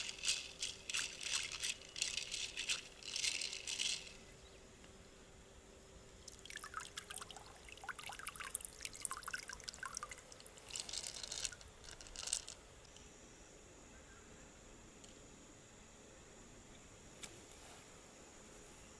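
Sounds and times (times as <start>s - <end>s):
water dripping and trickling: 6.2s - 10.8s.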